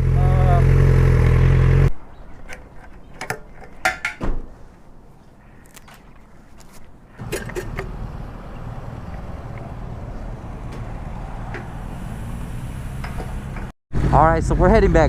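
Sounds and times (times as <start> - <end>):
motorcycle engine starting and idling: 0.0 - 1.9, 7.2 - 14.2
engine clicks: 2.4 - 4.2, 7.2 - 11.8.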